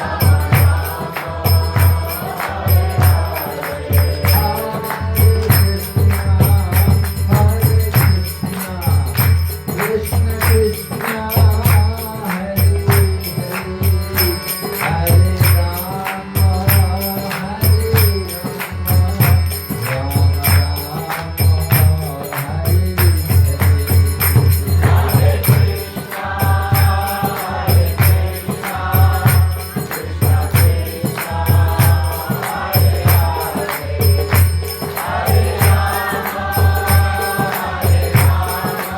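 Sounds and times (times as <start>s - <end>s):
devotional singing: 0.0s - 38.9s
ringing hand cymbals: 0.0s - 38.9s.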